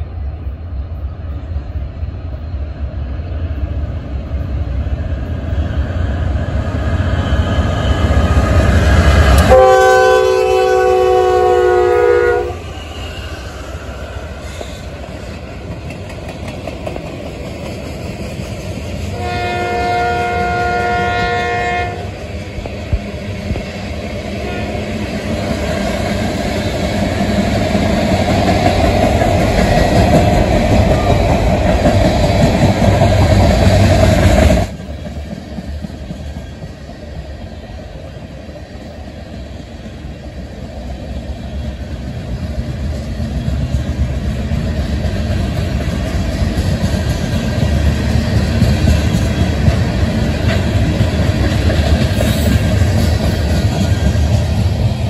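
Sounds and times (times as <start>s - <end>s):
freight cars rumbling over rails: 0.0s - 55.0s
locomotive horn: 9.4s - 12.7s, 19.1s - 22.2s, 24.4s - 24.9s.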